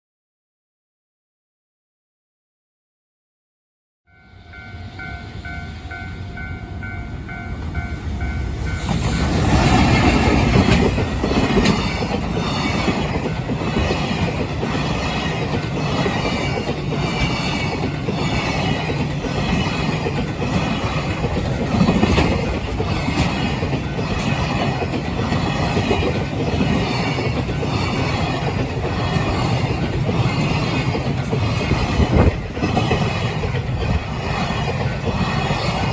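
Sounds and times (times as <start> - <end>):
freight train wagons clacking: 5.4 - 35.9.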